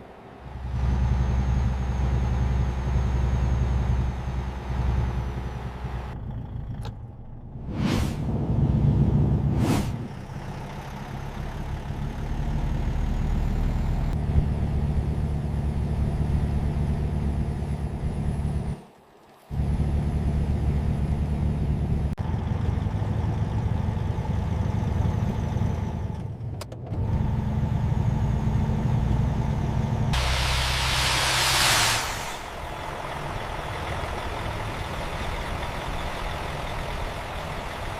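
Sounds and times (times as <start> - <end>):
road noise: 0.0 - 37.9
truck engine running: 0.0 - 37.9
burst of hiss: 30.2 - 32.6.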